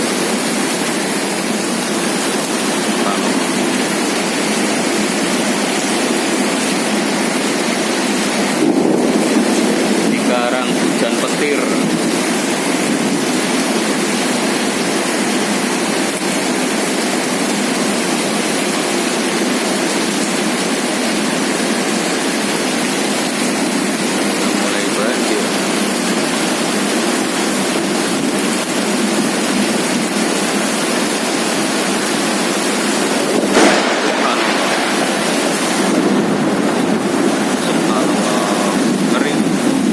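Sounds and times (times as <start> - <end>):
heavy rain pouring: 0.0 - 39.9
short sharp crack: 33.5 - 35.8.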